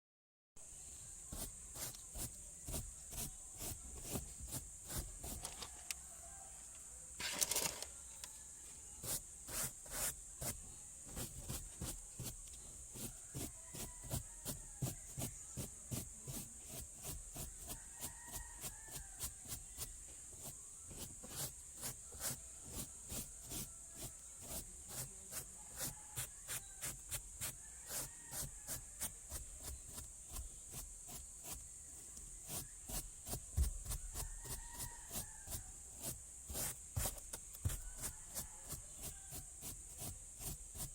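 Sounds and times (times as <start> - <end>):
brush scrubbing: 1.2 - 5.8, 9.0 - 40.9.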